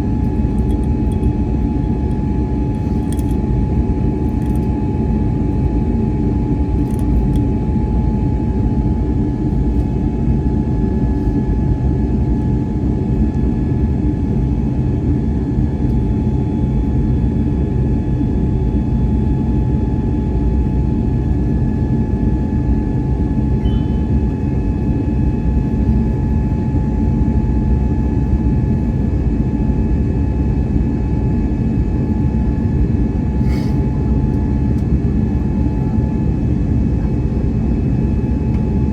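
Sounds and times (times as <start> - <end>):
engine and airflow rumble: 0.0 - 38.9.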